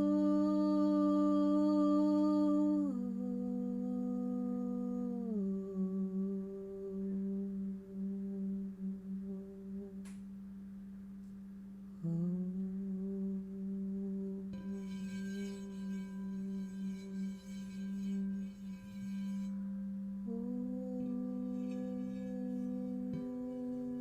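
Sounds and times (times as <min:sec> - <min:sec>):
person humming low note: 0:00.0 - 0:10.4, 0:12.0 - 0:24.0
singing bowls ringing: 0:14.2 - 0:24.0.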